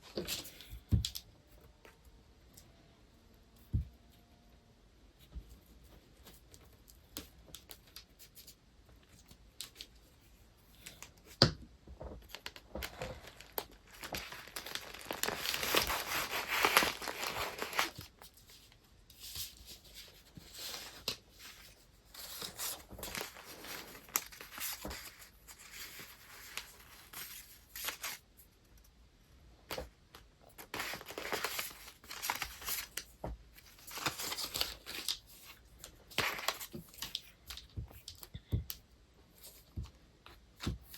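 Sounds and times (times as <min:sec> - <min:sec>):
paper rustling and crinkling: 0:12.0 - 0:28.9, 0:29.7 - 0:38.6.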